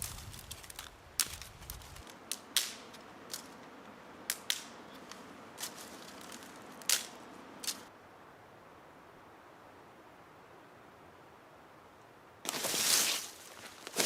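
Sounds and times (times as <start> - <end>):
campfire crackling: 0.0 - 7.9
faint hiss: 2.0 - 14.0.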